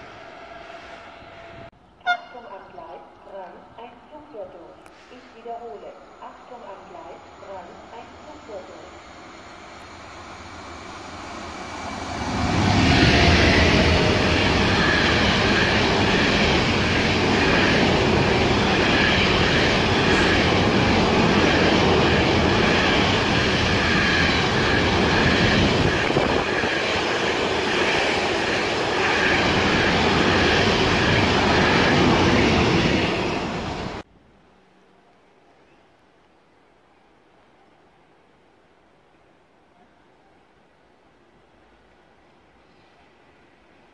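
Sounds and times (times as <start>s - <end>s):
freight train wheels rumbling: 7.4s - 34.0s.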